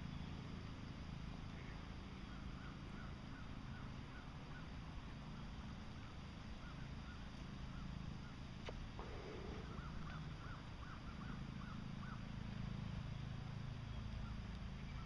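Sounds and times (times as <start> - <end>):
faint repeated bird calls: 0.0 - 15.0
steady low hum: 0.0 - 15.0
single click: 8.6 - 10.2.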